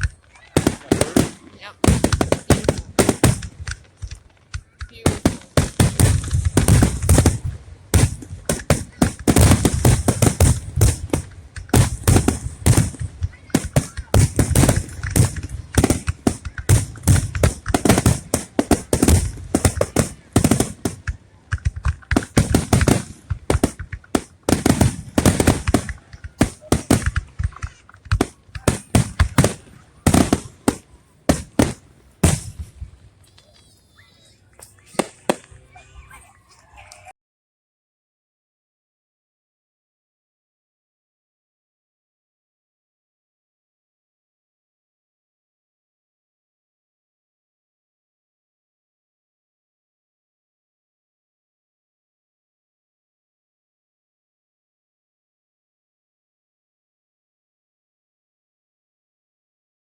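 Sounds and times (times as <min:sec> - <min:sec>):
deep fireworks booms: 0:00.0 - 0:33.1
fireworks bangs and crackles: 0:00.0 - 0:36.0.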